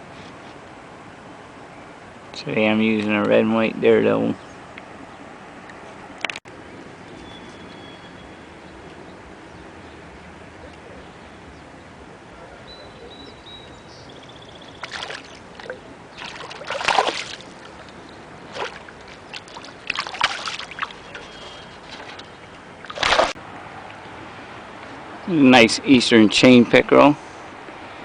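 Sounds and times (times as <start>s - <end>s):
water splashing and sloshing: 14.6s - 24.6s.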